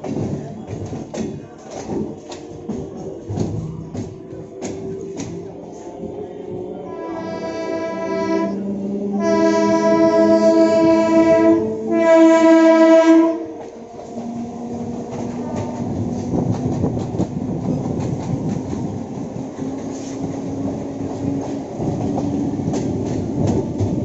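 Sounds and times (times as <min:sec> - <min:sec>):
train horn: 0:06.8 - 0:13.7.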